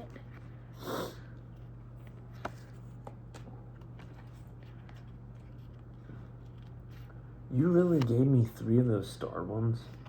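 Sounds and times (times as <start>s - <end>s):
steady low hum: 0.0s - 10.0s
trading cards clicking and rustling: 1.5s - 8.8s.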